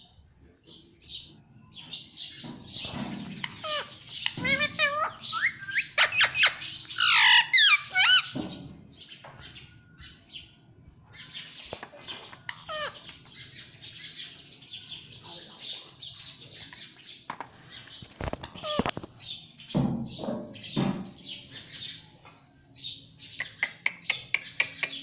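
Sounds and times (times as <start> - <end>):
parrot chirping and chattering: 2.0 - 9.6, 11.2 - 14.9, 17.6 - 19.5, 23.0 - 25.0
parrot whistled calls: 3.6 - 8.4.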